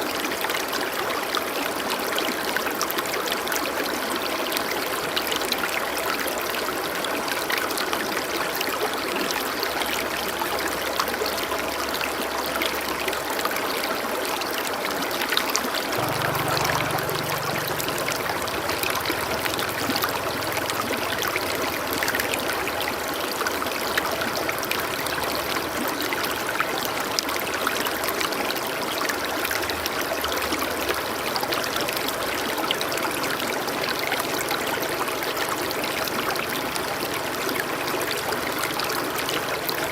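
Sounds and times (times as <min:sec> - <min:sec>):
stream water rushing: 0:00.0 - 0:39.9
faint low hum: 0:16.0 - 0:22.4.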